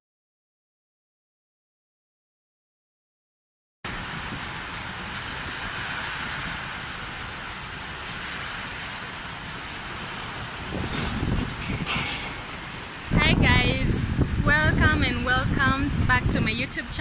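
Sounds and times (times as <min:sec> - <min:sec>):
heavy rain on paving: 0:03.9 - 0:17.0.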